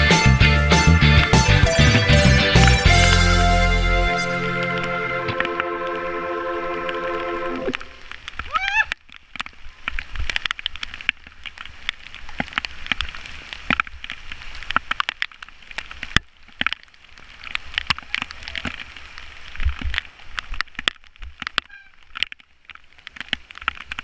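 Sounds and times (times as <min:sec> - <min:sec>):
rain drops tapping: 0:06.8 - 0:24.0.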